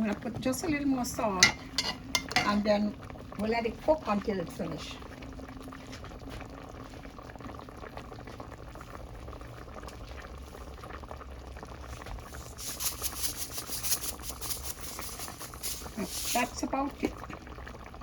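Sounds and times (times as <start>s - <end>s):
sauce boiling in a pot: 0.0s - 18.0s
sauce popping and spattering: 12.5s - 16.6s.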